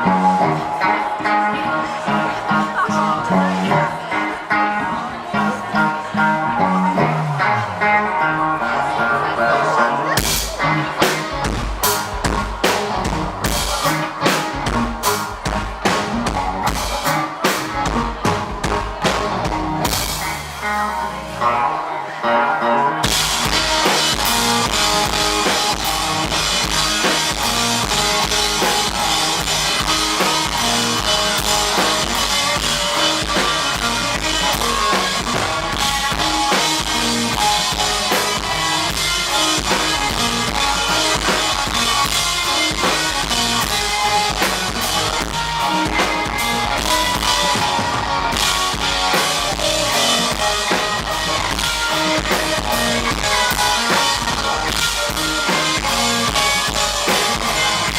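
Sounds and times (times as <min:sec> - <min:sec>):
live band playing: 0:00.0 - 0:57.9
bass drum and snare beat: 0:23.1 - 0:57.9.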